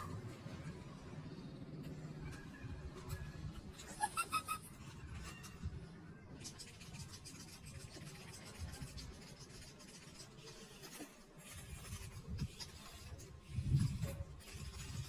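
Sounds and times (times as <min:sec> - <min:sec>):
cat scratching rope ball on floor: 0:06.4 - 0:15.0.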